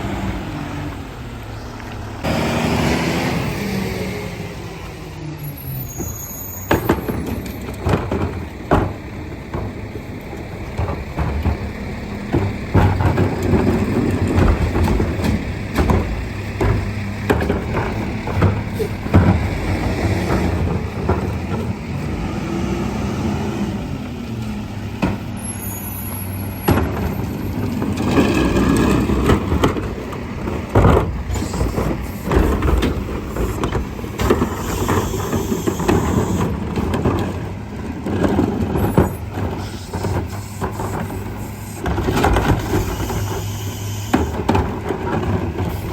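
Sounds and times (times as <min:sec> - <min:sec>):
garbage truck engine running: 0:00.0 - 0:45.9
high squeal: 0:05.4 - 0:07.5, 0:25.4 - 0:26.5
knocks and clanks: 0:06.0 - 0:22.7, 0:24.3 - 0:45.9.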